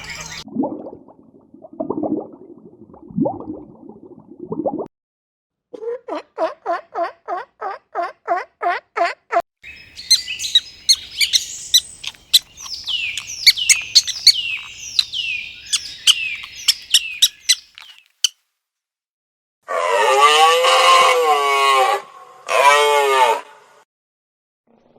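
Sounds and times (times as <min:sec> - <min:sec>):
birds chirping and singing: 0:00.0 - 0:00.4, 0:09.7 - 0:18.1
evenly spaced lower bird calls: 0:00.0 - 0:00.4, 0:09.6 - 0:18.4.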